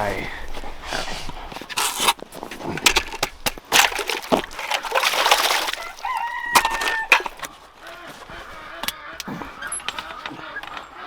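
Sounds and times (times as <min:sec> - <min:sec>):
footsteps through snow: 0:07.4 - 0:09.6.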